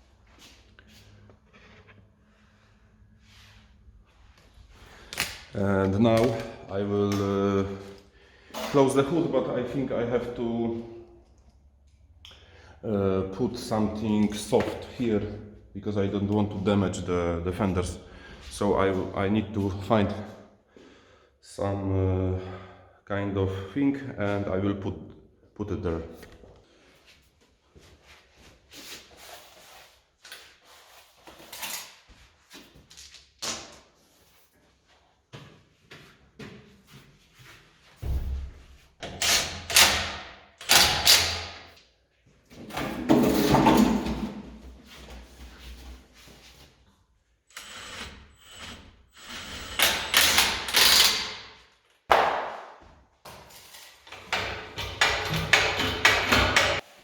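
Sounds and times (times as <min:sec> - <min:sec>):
objects scraping and knocking: 0:42.6 - 0:46.6
tools and parts clattering: 0:42.7 - 0:44.4, 0:53.4 - 0:56.9.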